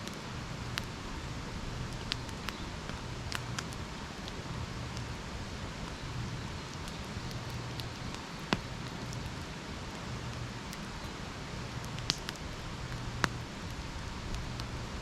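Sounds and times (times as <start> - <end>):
campfire crackling: 0.0 - 15.0
sharp pop of fire: 12.0 - 12.4.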